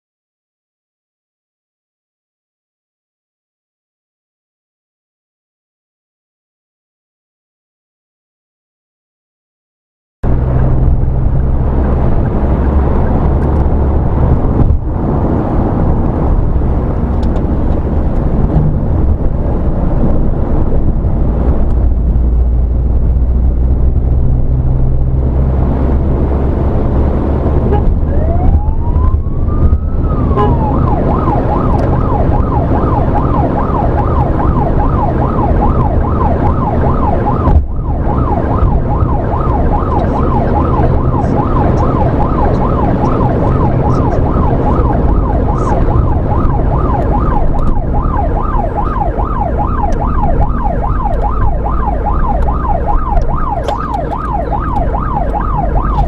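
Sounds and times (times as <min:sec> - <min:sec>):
vehicle road and engine noise: 0:10.2 - 0:56.0
siren wailing and yelping: 0:27.6 - 0:56.0.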